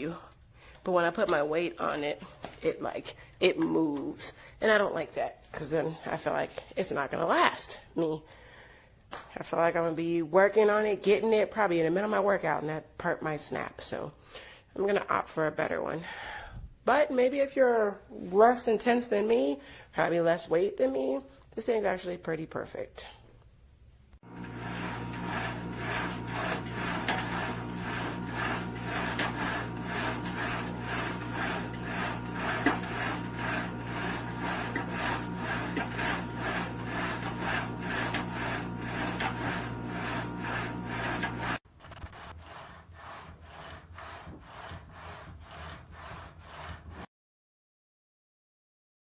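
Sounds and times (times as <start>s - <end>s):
carriages sliding on metal rails: 24.3s - 41.6s.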